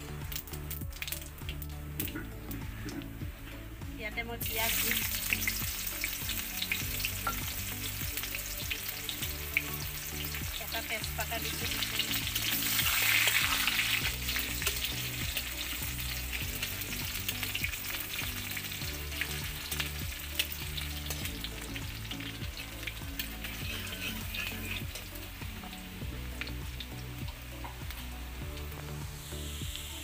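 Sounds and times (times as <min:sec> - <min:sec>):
onions sizzling in oil: 0:04.4 - 0:30.0
spatula stirring in metal pan: 0:23.4 - 0:25.1.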